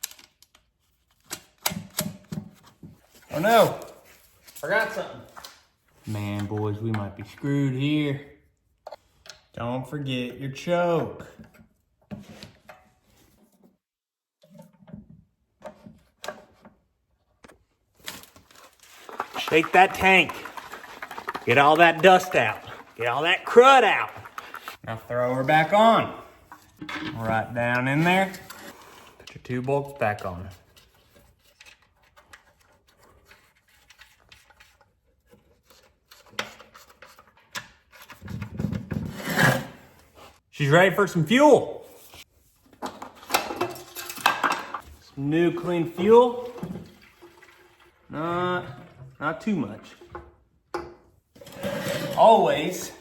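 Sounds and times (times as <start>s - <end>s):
handling engine parts and tools: 14.4s - 24.8s, 25.5s - 40.2s, 42.0s - 45.1s.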